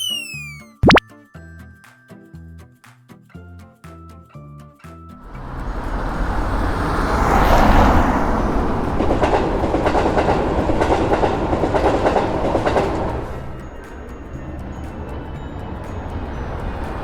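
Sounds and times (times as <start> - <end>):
train wheels clattering: 7.0 - 15.3.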